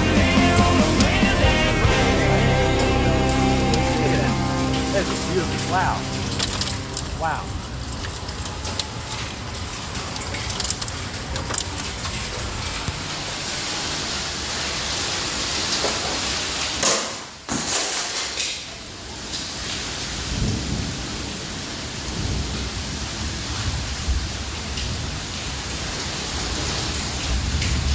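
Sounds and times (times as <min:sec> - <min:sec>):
heavy rain falling: 0:00.0 - 0:27.9.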